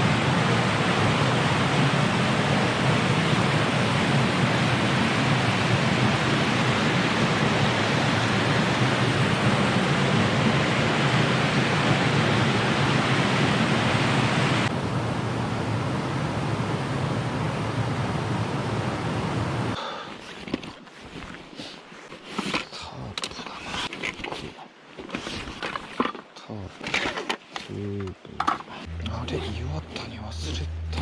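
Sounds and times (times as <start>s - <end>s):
mountain stream rushing: 0.0s - 14.7s.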